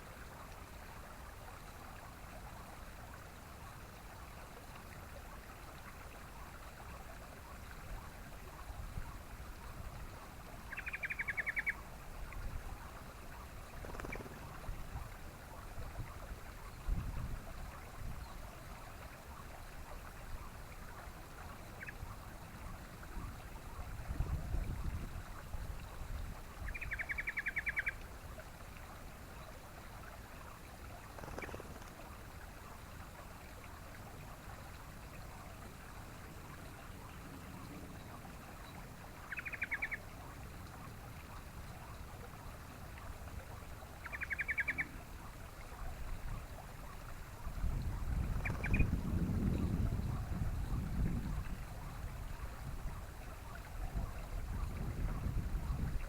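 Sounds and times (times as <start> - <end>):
bird bubbling chatter: 10.7 - 11.8, 13.7 - 14.7, 31.1 - 32.0, 39.2 - 40.1, 44.0 - 45.0, 48.1 - 49.1.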